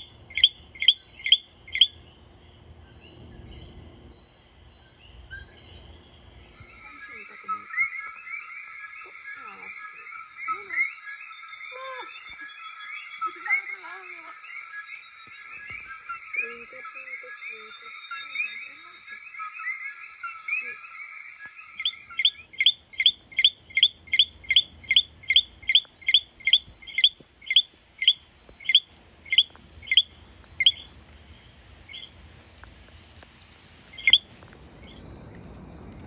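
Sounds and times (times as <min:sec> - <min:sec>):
single frog chirping: 0:00.0 - 0:02.0, 0:14.4 - 0:30.9, 0:31.9 - 0:32.7, 0:33.9 - 0:34.3
chorus of frogs calling: 0:00.0 - 0:02.1, 0:05.4 - 0:35.6.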